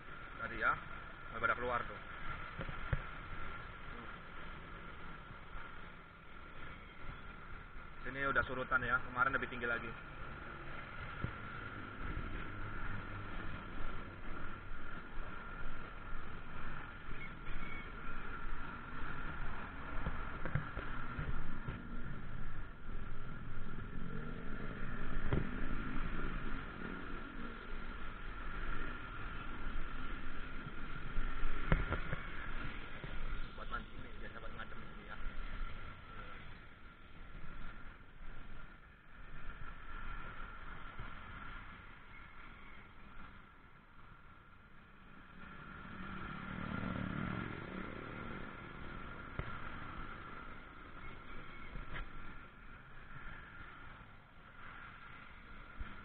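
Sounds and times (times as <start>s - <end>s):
motor vehicle running: 0.0s - 56.0s
vehicle engine passing by: 45.4s - 50.3s.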